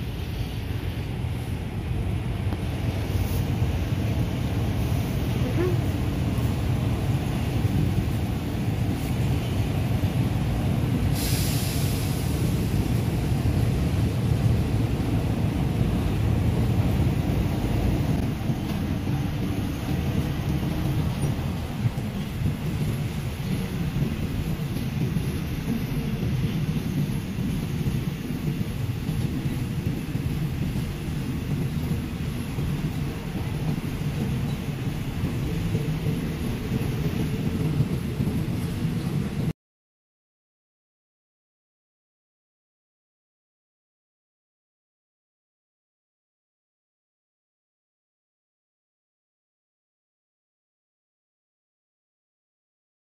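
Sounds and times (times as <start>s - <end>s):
train rumbling on track: 0.0s - 39.6s
brief hiss: 11.1s - 12.5s.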